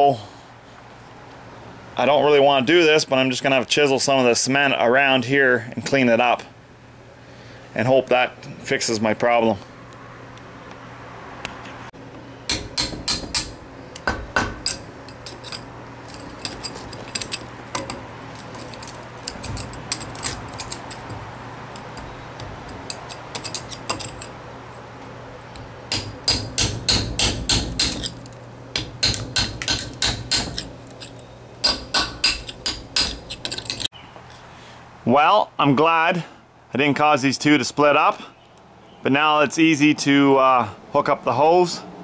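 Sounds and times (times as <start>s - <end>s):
hammer striking chisel: 12.5s - 18.0s, 25.9s - 28.2s, 28.8s - 33.9s.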